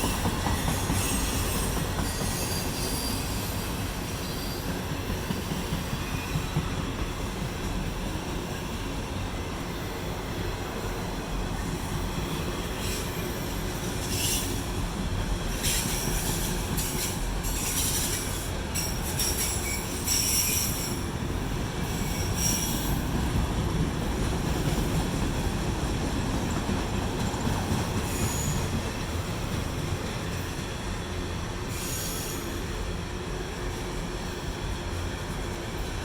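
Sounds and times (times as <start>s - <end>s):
high-pitched wheel squeals: 0.1s - 4.7s, 17.5s - 21.0s, 28.0s - 28.8s, 31.7s - 32.7s.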